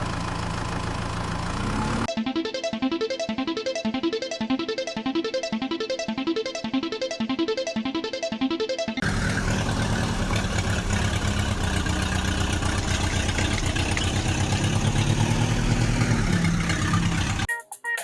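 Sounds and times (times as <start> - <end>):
vehicle engine chugging: 0.0 - 2.1, 9.0 - 17.5
music: 2.1 - 9.0, 17.5 - 18.0.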